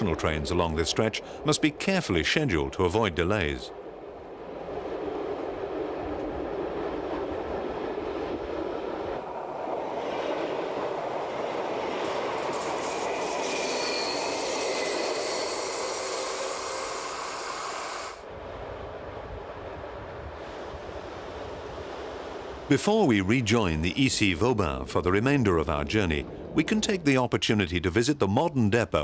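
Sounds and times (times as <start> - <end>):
train wheels rumbling on rails: 5.4 - 18.2
high wheel squeal: 12.5 - 18.2.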